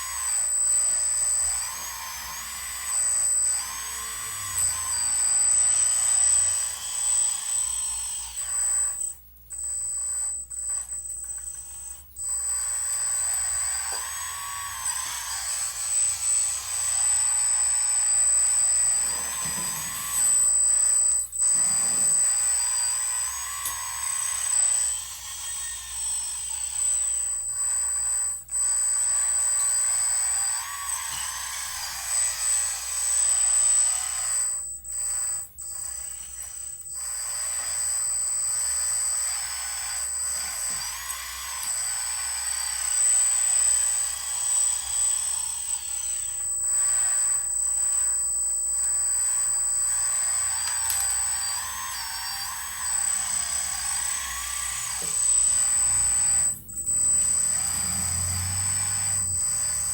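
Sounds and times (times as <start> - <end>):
electric hydraulic pump whining: 0.0 - 59.9.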